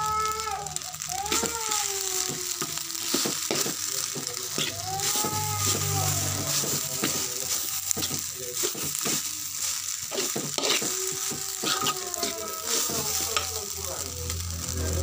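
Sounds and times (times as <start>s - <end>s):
rice sizzling in a wok: 0.0s - 15.0s
metal spatula scraping a wok: 2.6s - 13.6s.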